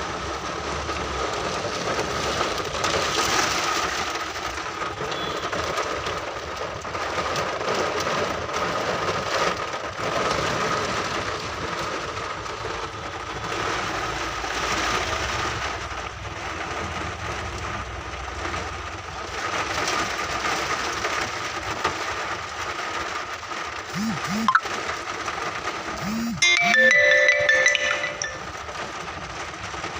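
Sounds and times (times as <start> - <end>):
storm wind with rain: 0.0 - 23.9.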